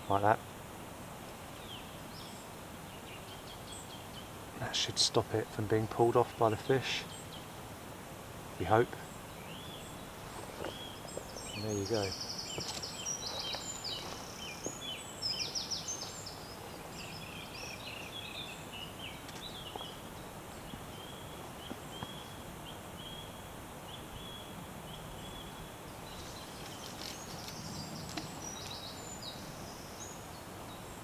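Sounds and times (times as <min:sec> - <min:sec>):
outdoor background hiss: 0:00.0 - 0:31.0
small birds chirping: 0:01.3 - 0:07.8, 0:08.5 - 0:31.0.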